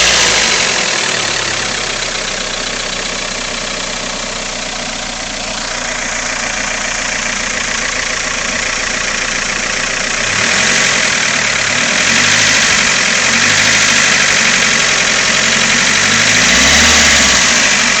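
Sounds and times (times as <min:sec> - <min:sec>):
engine running: 0:00.0 - 0:18.0
engine ticking: 0:00.0 - 0:18.0.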